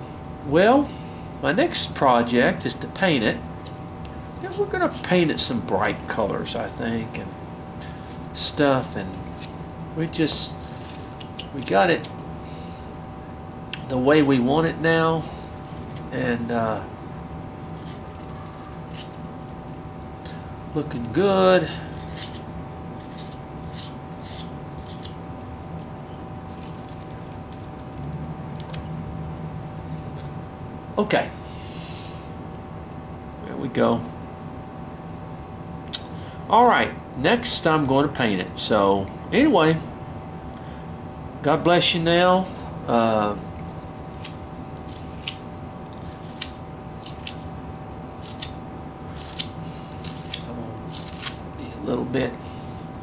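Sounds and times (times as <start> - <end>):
knife shaving wood: 7.8 - 9.6, 10.2 - 12.1, 15.6 - 16.3, 17.6 - 19.6, 21.8 - 25.2, 26.5 - 28.8, 43.8 - 47.5, 48.1 - 51.4
knife whittling wood: 21.9 - 25.2, 44.0 - 45.4, 46.2 - 47.5, 48.2 - 51.4.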